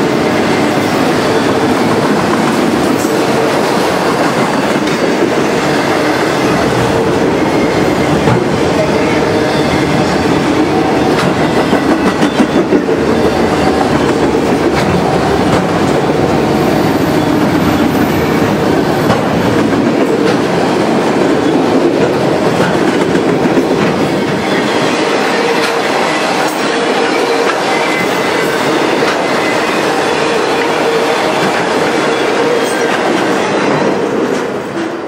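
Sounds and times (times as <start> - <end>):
rumble of steel wheels on rail: 0.0 - 35.0
wheels clacking over rail joints: 0.8 - 24.7.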